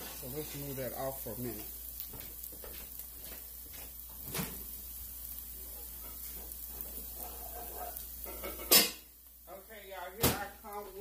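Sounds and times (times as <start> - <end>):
food sizzling in a skillet: 0.0 - 11.0.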